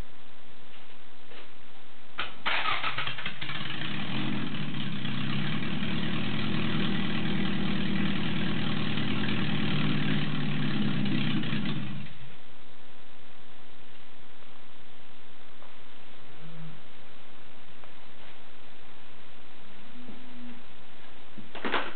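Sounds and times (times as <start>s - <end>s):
car engine starting and idling: 2.2s - 12.3s.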